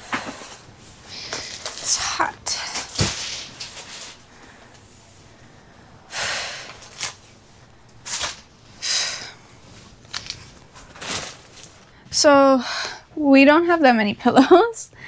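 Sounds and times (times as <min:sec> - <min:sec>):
woman breathing heavily: 0:00.0 - 0:07.9, 0:08.8 - 0:09.7, 0:11.9 - 0:13.2.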